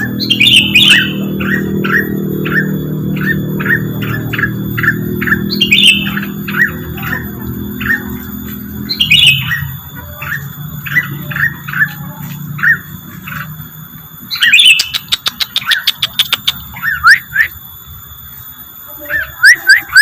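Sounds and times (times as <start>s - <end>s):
harsh high squawk: 0.0s - 13.6s, 18.9s - 20.0s
rapid sharp ticks: 14.7s - 16.7s.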